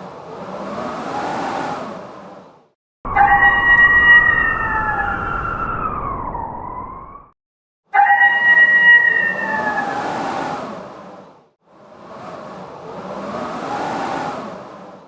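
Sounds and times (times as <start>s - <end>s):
blizzard wind gust: 0.0s - 7.3s, 8.0s - 15.0s
wolves howling: 3.1s - 6.4s, 8.0s - 10.2s.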